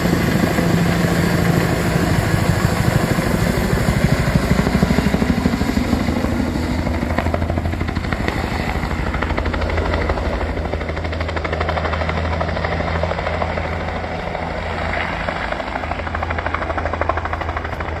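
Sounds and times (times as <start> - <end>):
helicopter rotor chop: 0.0 - 18.0.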